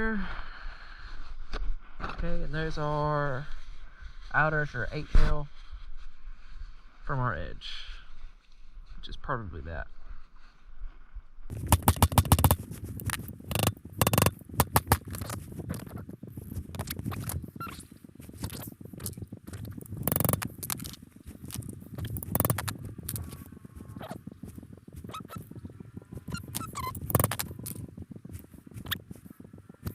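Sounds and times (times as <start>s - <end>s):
metallic clicking of hand tools: 11.5s - 15.1s, 20.0s - 20.9s, 22.0s - 23.2s.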